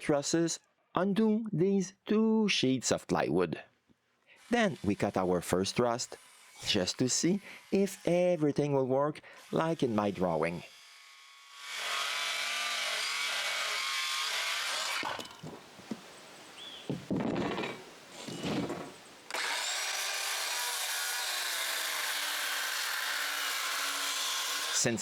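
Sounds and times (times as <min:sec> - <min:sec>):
power saw cutting wood: 0:04.4 - 0:15.6, 0:17.2 - 0:25.0
knocks: 0:16.9 - 0:19.0.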